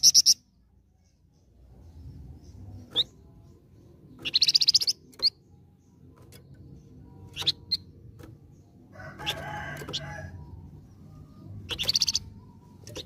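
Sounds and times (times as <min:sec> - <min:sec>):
songbird chirps: 0:00.0 - 0:13.0
fast bird trill: 0:11.7 - 0:12.4.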